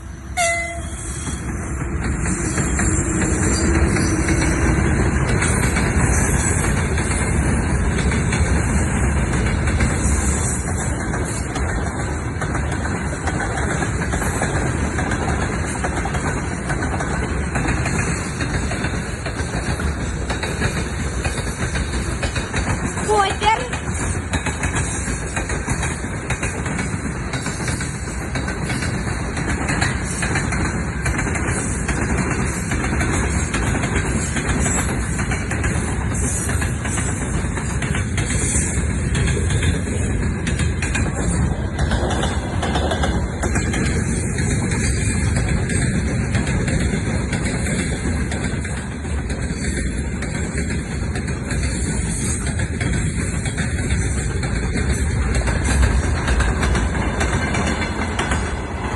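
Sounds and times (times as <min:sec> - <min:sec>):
train rolling rumble: 0:00.0 - 0:58.9
wheels clicking over rail joints: 0:00.4 - 0:58.9.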